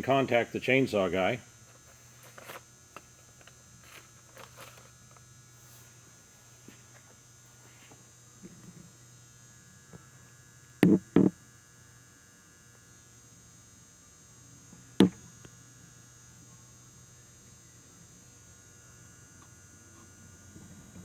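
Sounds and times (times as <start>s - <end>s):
sharp knocks: 10.8s - 11.3s, 15.0s - 15.2s.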